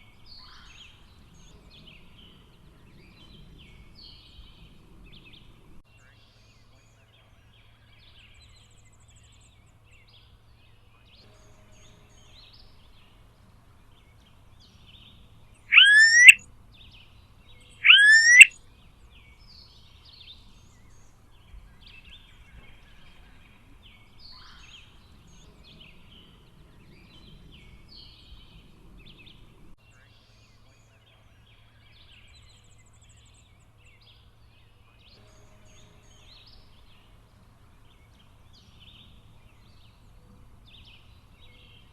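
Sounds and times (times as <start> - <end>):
bird whining calls rising in pitch: 15.7 - 16.4, 17.8 - 18.5
faint bird chirps: 15.7 - 16.4, 17.8 - 18.5.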